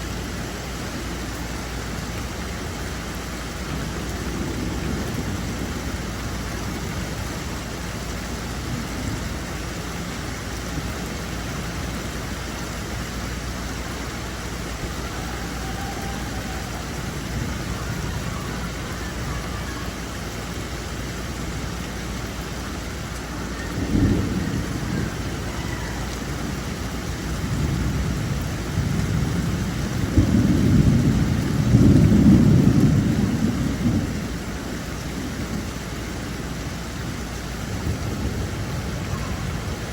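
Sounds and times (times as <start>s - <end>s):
rain hiss: 0.0s - 39.9s
rolling thunder rumble: 0.0s - 39.9s
thunder crack: 14.7s - 20.0s, 23.6s - 34.5s.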